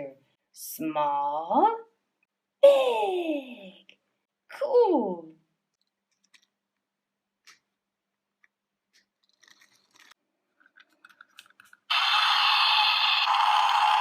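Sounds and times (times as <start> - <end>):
plastic toy vehicles clicking: 9.2 - 11.9.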